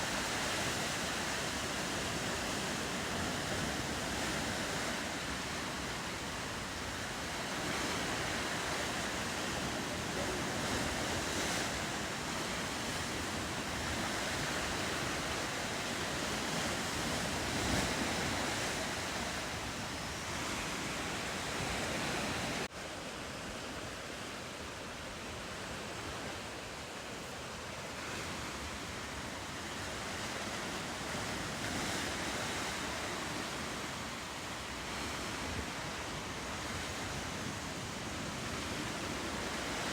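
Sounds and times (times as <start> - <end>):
wind on microphone: 0.0 - 22.7
ocean surf washing: 0.0 - 39.9.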